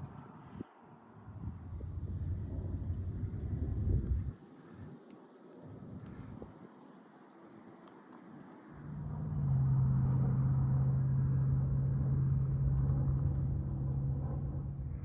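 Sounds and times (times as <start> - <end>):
car engine running: 8.8 - 15.0.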